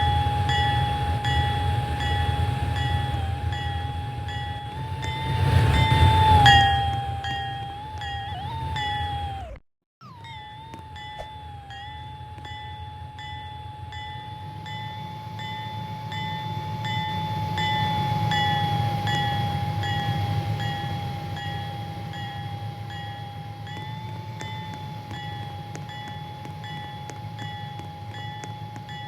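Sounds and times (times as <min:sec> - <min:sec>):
freight train rumbling: 0:00.0 - 0:09.5
crossing bell ringing: 0:00.0 - 0:29.0.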